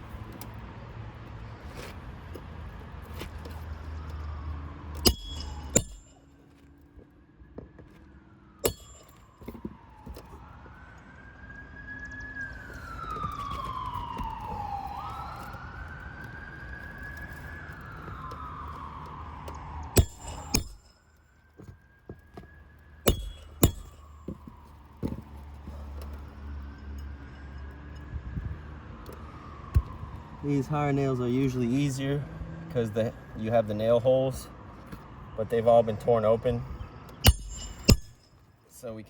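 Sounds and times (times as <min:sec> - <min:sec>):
distant siren wailing: 0:03.7 - 0:06.2, 0:07.1 - 0:33.8.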